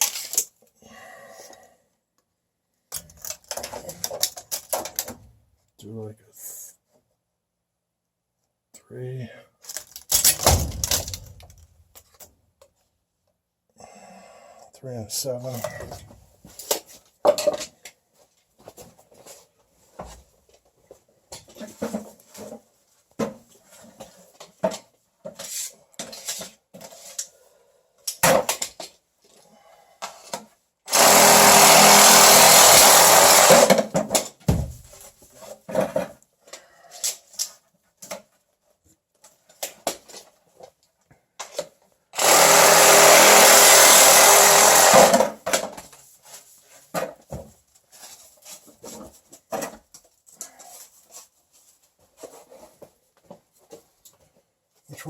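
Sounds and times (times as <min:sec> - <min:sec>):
power saw cutting pipe: 0:30.9 - 0:33.8, 0:42.2 - 0:45.3.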